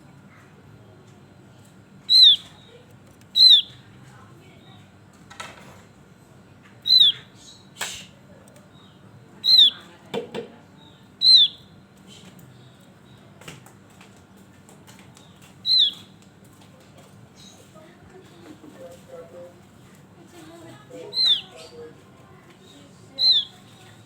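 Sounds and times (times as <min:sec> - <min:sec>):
bird calls sliding downward: 0:21.1 - 0:21.4.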